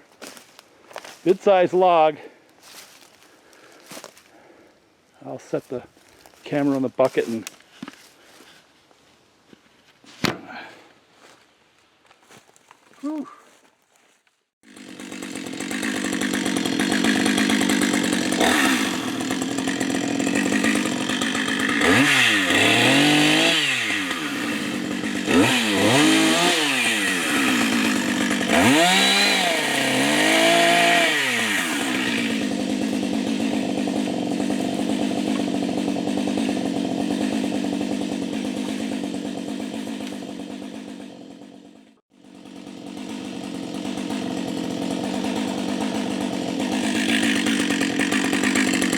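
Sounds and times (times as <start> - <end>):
chainsaw engine revving: 14.6 - 48.9.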